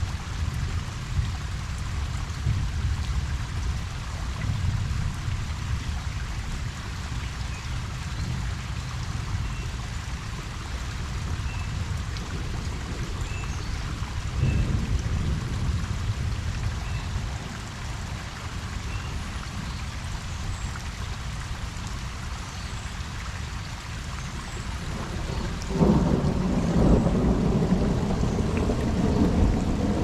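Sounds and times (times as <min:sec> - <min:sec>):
rain falling on a pond: 0:00.0 - 0:30.0
distant thunder rumble: 0:11.8 - 0:16.6, 0:24.6 - 0:30.0.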